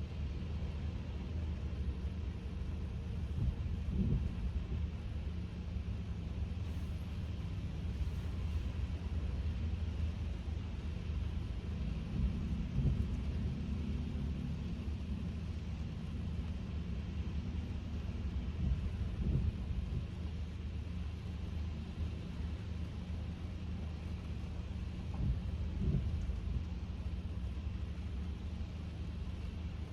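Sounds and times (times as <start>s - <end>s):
in-cabin road rumble: 0.0s - 29.9s
tyres hissing on wet road: 0.0s - 29.9s.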